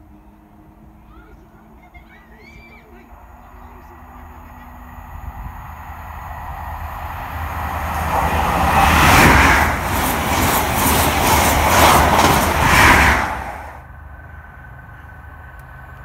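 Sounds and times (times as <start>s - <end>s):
train passing at speed: 0.0s - 16.0s
wheels clickety-clack over rail joints: 6.1s - 16.0s.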